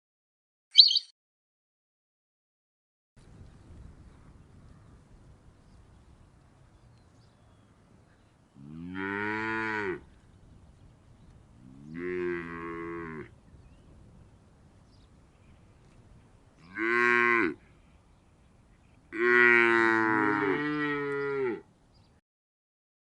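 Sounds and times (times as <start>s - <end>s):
cows mooing: 8.6s - 10.1s, 11.7s - 13.3s, 16.6s - 17.6s, 19.2s - 21.6s.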